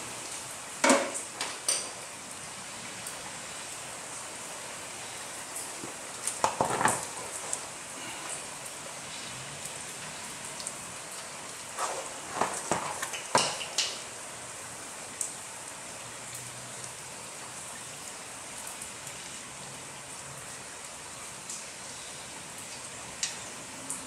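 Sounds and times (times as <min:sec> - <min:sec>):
rain hissing: 0:00.0 - 0:24.0
tools and plastic pan clattering: 0:06.4 - 0:07.2, 0:11.8 - 0:14.0.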